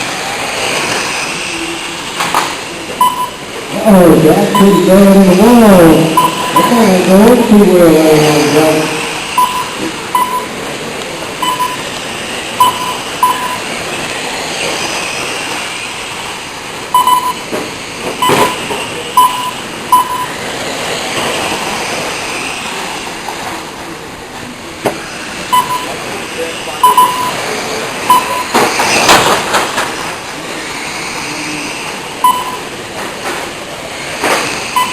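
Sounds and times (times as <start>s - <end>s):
racing truck motors whining: 0.0s - 34.9s
short electronic beeps: 3.0s - 3.5s, 4.4s - 5.2s, 6.0s - 7.0s, 9.4s - 10.6s, 11.4s - 11.9s, 12.6s - 13.7s, 16.9s - 17.5s, 18.2s - 20.4s, 25.5s - 26.0s, 26.8s - 27.4s, 28.0s - 28.6s, 32.2s - 32.7s.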